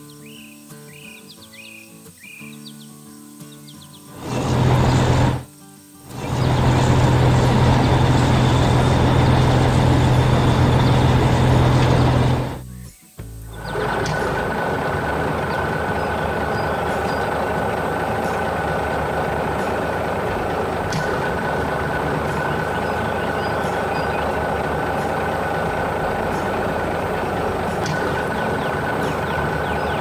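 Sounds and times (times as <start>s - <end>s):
heavy vehicle engine running: 4.2s - 5.5s, 6.1s - 12.7s, 13.4s - 30.0s
steady whine: 4.2s - 5.5s, 6.1s - 12.6s, 13.5s - 30.0s.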